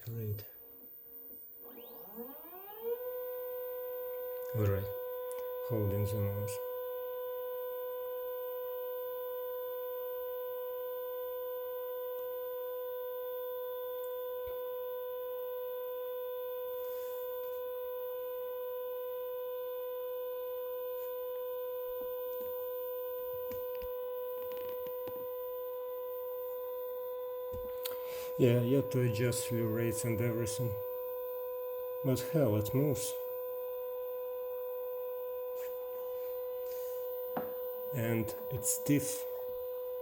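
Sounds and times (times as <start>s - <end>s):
stepper motor whining: 1.5s - 4.8s.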